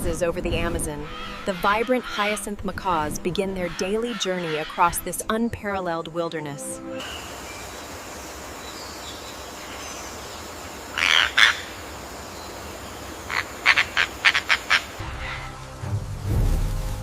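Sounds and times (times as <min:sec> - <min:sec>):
bird squawks: 0:01.0 - 0:02.5, 0:03.5 - 0:05.0, 0:09.6 - 0:15.6
forest ambience hiss: 0:07.0 - 0:17.0.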